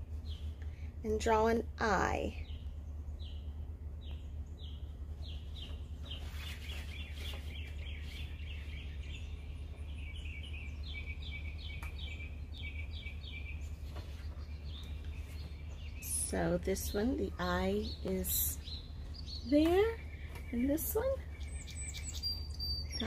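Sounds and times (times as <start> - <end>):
bird chirping: 0.0 - 23.0
steady low hum: 0.0 - 23.0.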